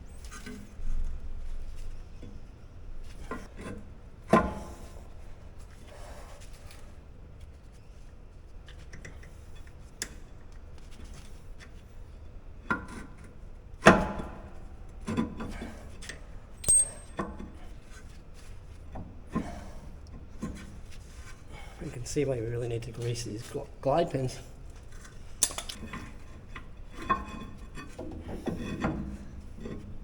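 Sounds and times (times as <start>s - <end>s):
metal tool clinks and knocks: 16.6s - 17.2s.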